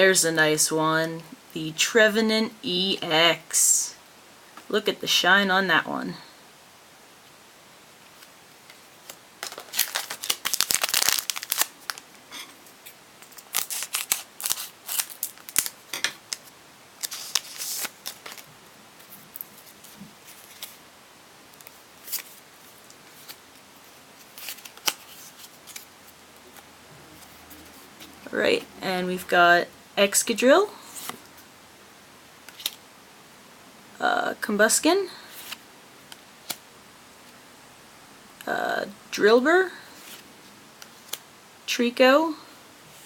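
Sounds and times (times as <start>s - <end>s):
cards rustling: 8.1s - 12.1s, 12.8s - 20.8s, 21.6s - 23.4s, 24.2s - 26.6s, 32.4s - 32.8s, 35.3s - 35.6s
foil wrapper crinkling: 9.0s - 12.2s, 12.8s - 18.5s, 24.2s - 25.9s.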